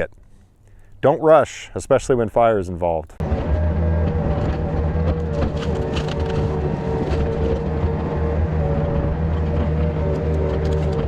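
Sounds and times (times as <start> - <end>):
engine running steadily: 3.2 - 11.0.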